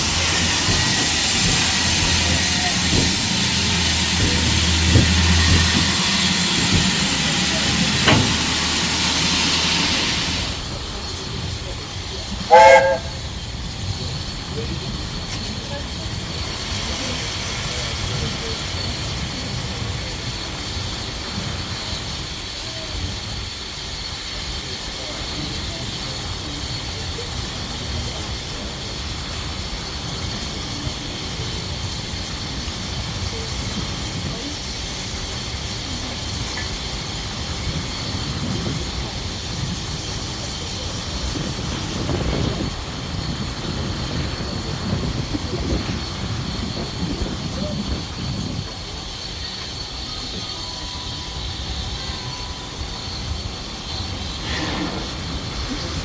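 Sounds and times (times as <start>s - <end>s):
rush of noise: 0.0s - 25.3s
train wheels rumbling on rails: 0.0s - 56.0s
high-pitched wheel squeal: 12.5s - 13.3s, 49.1s - 54.8s.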